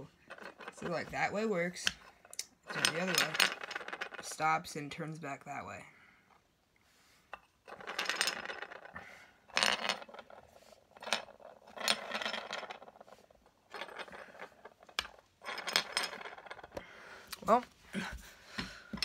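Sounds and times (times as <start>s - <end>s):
rattleback rattling on hard surface: 2.0s - 4.4s, 7.4s - 16.8s.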